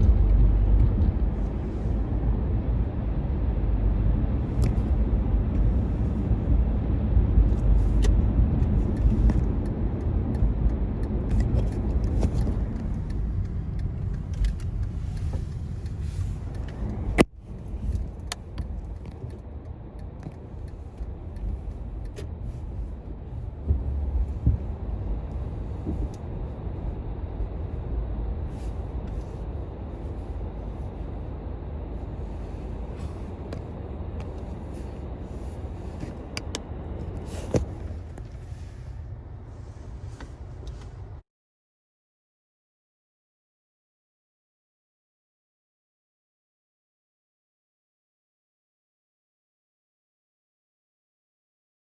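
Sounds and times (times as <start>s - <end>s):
car wash machinery rumbling: 0.0s - 41.0s.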